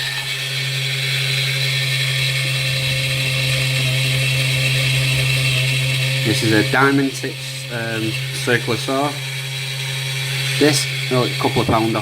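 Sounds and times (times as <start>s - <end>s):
circular saw whining: 0.0s - 12.0s.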